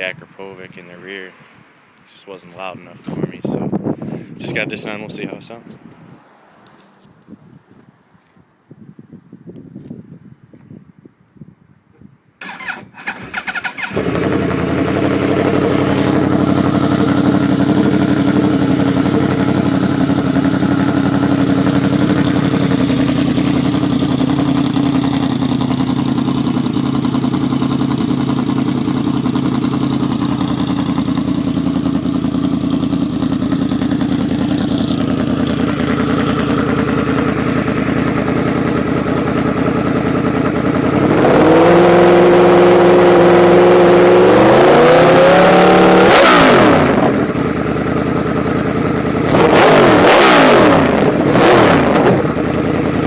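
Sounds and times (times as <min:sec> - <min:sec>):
motorcycle engine idling: 0:12.4 - 0:44.4, 0:45.0 - 0:53.0.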